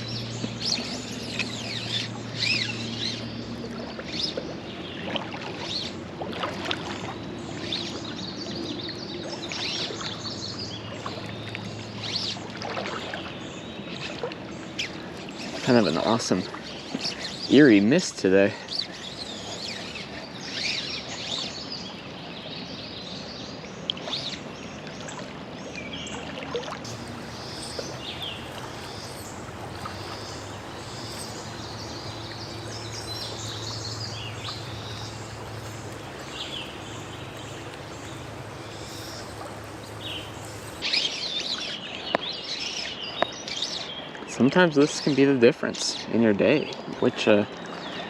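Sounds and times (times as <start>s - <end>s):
creek water flowing: 0.0s - 48.0s
songbirds chirping: 0.0s - 48.0s
low steady hum: 26.9s - 40.9s.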